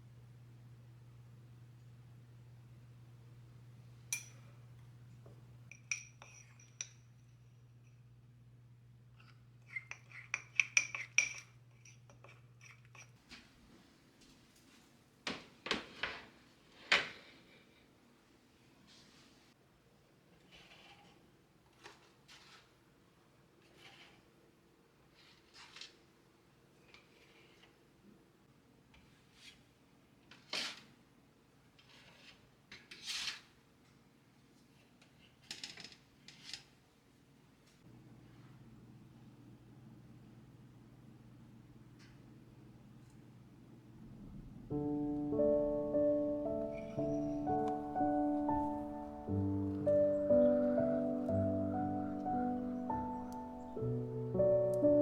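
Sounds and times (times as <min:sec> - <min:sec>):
faint low hum: 0:00.0 - 0:09.8, 0:37.9 - 0:55.0
faint steady hum: 0:00.0 - 0:10.2
dishes and utensils clinking: 0:04.1 - 0:04.5, 0:05.7 - 0:07.3, 0:09.7 - 0:13.2.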